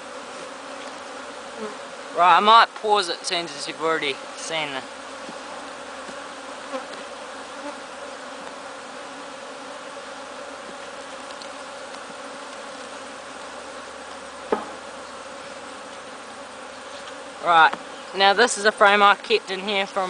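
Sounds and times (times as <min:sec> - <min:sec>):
honey bees buzzing: 0:00.0 - 0:20.0
sharp knock: 0:14.5 - 0:14.8.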